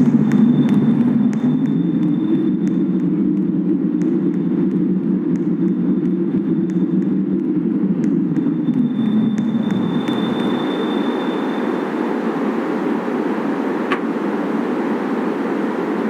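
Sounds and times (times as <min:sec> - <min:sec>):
light rail train rumble: 0:00.0 - 0:03.0, 0:08.4 - 0:16.0
faint high whine: 0:00.0 - 0:16.0.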